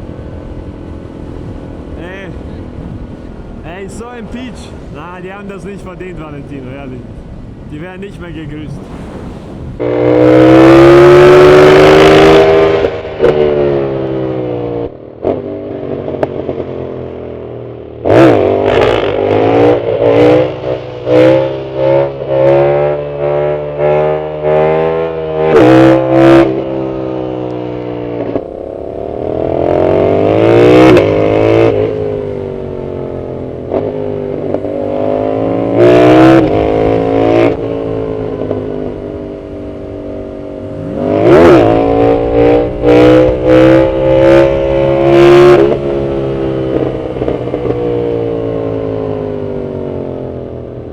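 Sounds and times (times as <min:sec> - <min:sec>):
motorcycle engine revving: 0:09.8 - 0:14.0, 0:28.6 - 0:50.4.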